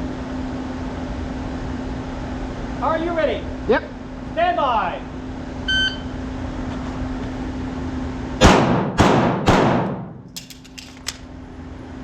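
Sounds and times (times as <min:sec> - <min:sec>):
handgun shots: 0:08.4 - 0:11.3.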